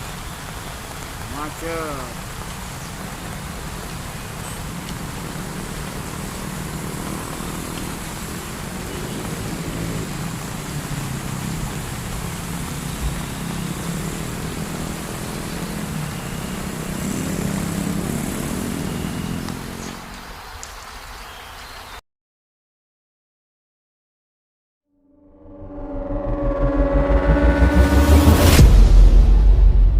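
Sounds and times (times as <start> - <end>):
motorcycle engine humming: 0.0 - 20.4
heavy rain hissing: 0.0 - 22.0.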